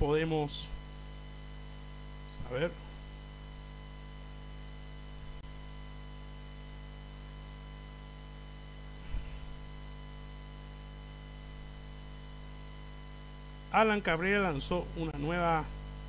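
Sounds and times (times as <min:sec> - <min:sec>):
electrical mains hum: 0:00.0 - 0:16.0
faint low thump: 0:09.0 - 0:09.6.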